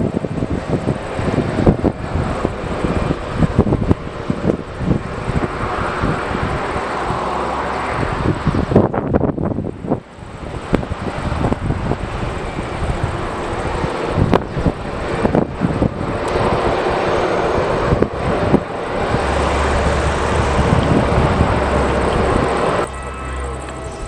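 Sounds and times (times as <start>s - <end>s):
jet engines running: 0.0s - 24.0s
wind buffeting microphone: 0.0s - 24.0s
steady low drone: 17.3s - 24.0s.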